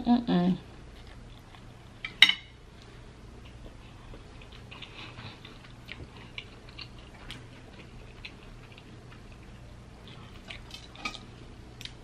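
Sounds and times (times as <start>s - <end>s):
chewing noodles: 3.4s - 12.0s.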